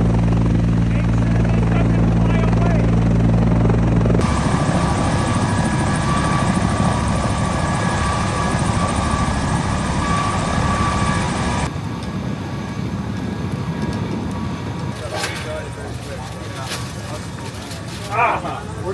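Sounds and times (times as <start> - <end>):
helicopter running: 0.0 - 18.9.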